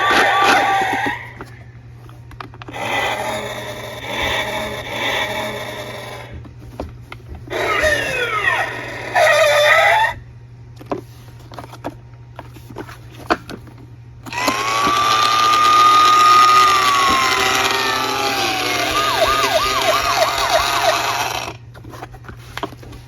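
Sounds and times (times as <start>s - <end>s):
siren wailing: 7.5s - 10.2s, 14.3s - 21.6s
toy cars clicking and tapping: 14.3s - 21.6s.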